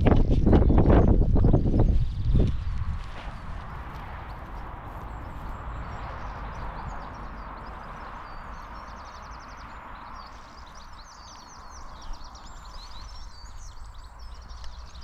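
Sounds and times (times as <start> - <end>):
birds singing and chirping: 0.0 - 15.0
dog footfalls crunching: 2.2 - 5.6.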